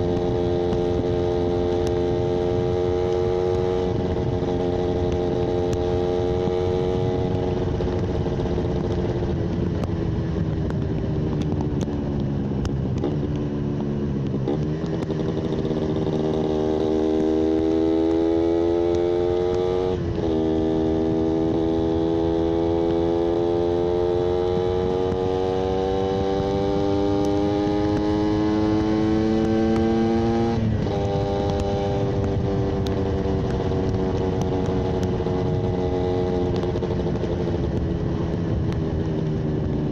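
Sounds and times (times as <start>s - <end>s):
two-stroke motorcycle engine: 0.0s - 39.9s.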